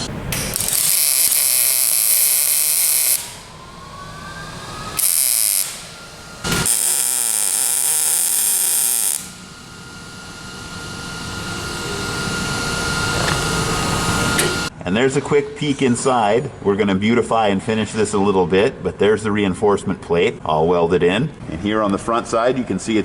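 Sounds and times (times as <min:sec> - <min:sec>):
hissing welding bursts: 0:00.0 - 0:03.6, 0:04.7 - 0:14.7
grinder whine: 0:00.0 - 0:14.7.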